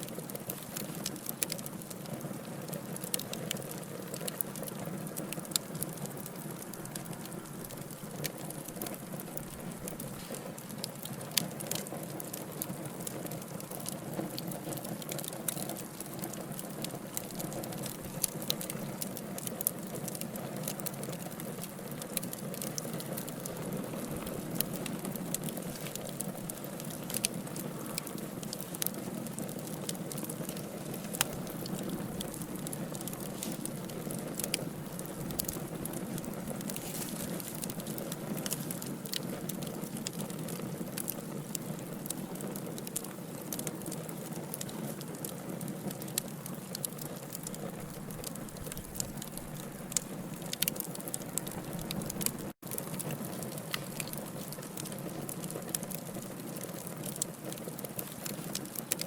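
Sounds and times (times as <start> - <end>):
burning logs crackling and popping: 0.0 - 59.0
fire hissing: 3.0 - 12.4, 13.0 - 45.2.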